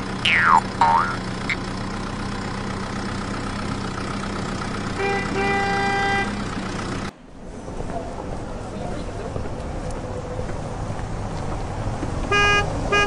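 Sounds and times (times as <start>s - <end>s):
vehicle engine hum: 0.0s - 13.0s
horn honking: 4.8s - 6.6s, 12.3s - 13.0s.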